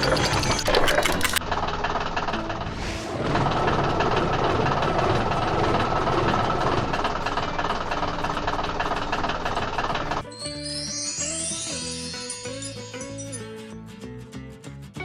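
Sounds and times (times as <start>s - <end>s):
heavy vehicle engine knocking rumble: 1.4s - 10.2s.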